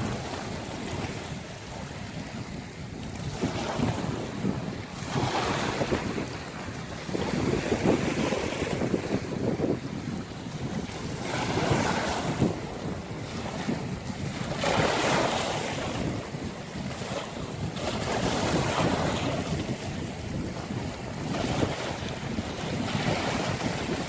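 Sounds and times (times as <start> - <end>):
sea waves breaking on shore: 0.0 - 24.0
wind rumbling on microphone: 0.0 - 24.0.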